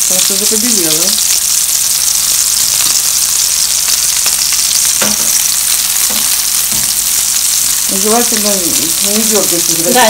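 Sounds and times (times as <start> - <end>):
meat frying in hot oil: 0.0 - 10.0.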